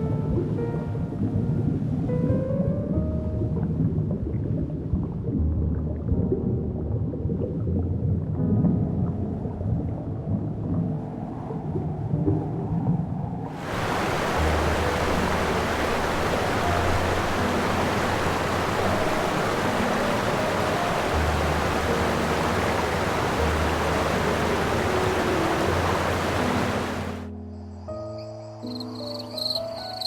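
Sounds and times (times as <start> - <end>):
soft background music: 0.0 - 30.0
steady rushing hiss: 13.6 - 27.2.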